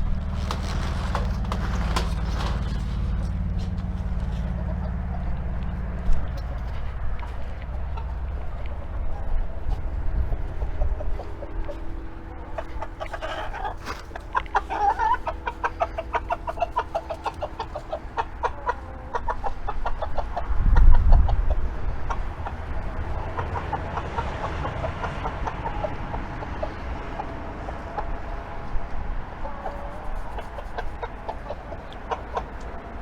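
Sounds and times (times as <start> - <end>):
low rumble: 0.0 - 13.2
chickens clucking: 0.1 - 33.0.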